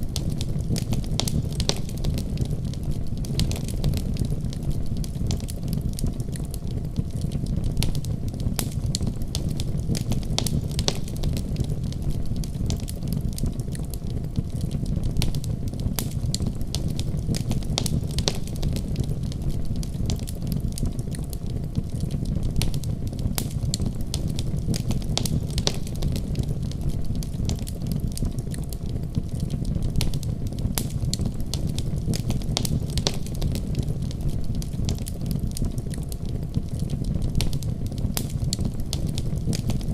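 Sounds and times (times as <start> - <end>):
fire crackling and popping: 0.0 - 39.9
low rumble of flames: 0.0 - 39.9.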